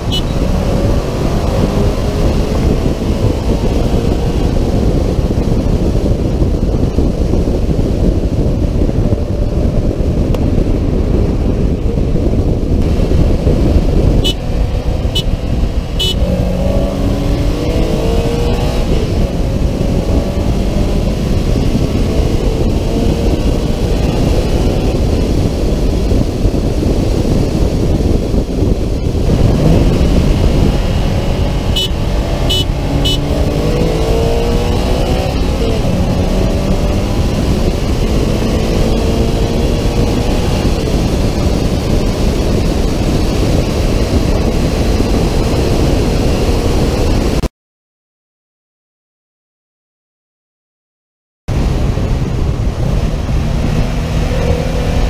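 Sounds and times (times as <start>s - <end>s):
car engines running hard: 0.0s - 47.5s, 51.5s - 55.0s
road rumble: 0.0s - 47.5s, 51.5s - 55.0s
wind noise on microphone: 0.0s - 47.5s, 51.5s - 55.0s
short high beeps: 31.7s - 33.3s.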